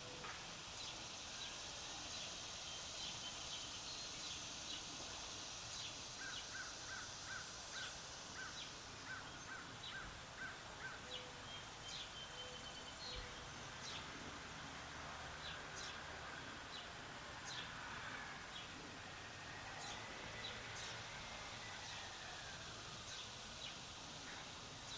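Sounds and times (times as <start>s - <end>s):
faint steady hiss: 0.0s - 24.9s.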